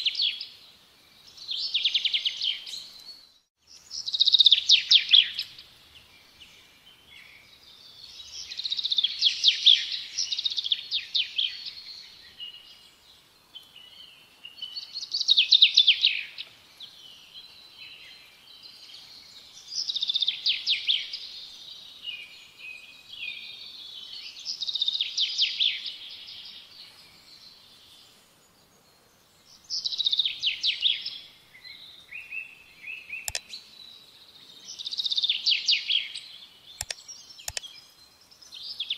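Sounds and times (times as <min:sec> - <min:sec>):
sharp click: 0:33.2 - 0:33.6, 0:36.8 - 0:37.7.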